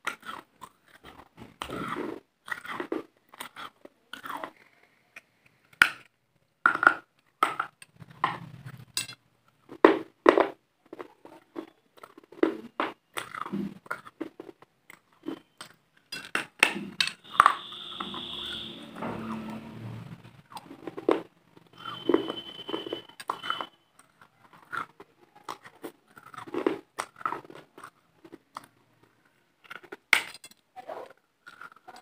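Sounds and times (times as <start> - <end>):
chewing crunchy food: 0.0 - 18.7, 20.4 - 32.0
steady high tone: 17.2 - 20.4.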